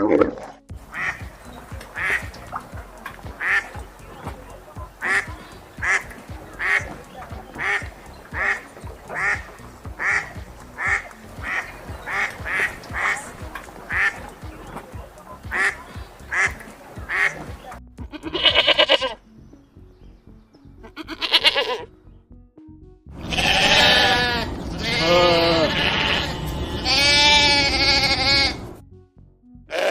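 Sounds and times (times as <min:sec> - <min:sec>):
duck quacking: 0:00.8 - 0:19.2, 0:20.8 - 0:21.9, 0:23.2 - 0:28.8
long wavering bleats: 0:18.1 - 0:19.2, 0:20.8 - 0:21.9, 0:23.2 - 0:28.7, 0:29.7 - 0:29.9.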